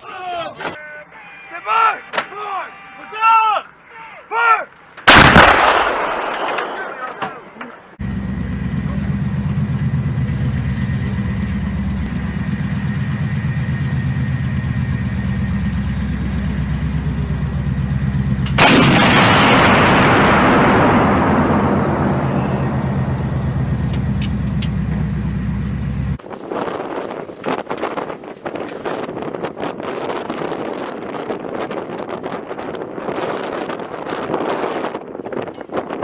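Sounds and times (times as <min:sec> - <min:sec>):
artillery gun blast: 0:05.1 - 0:07.8, 0:18.5 - 0:23.6
heavy engine rumbling: 0:07.5 - 0:26.3.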